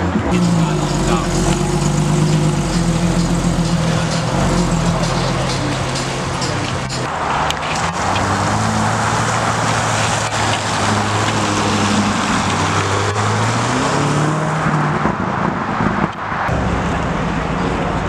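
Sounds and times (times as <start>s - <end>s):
car engine running: 0.0s - 13.8s
road and exhaust noise: 0.0s - 18.0s.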